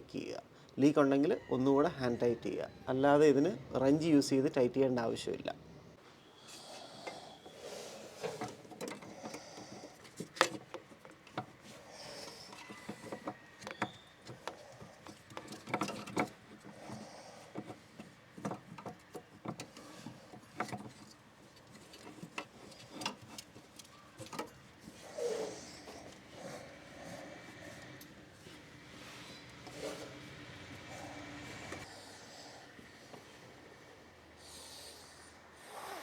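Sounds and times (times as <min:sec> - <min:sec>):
parts clicking and knocking by hand: 0:06.5 - 0:31.9.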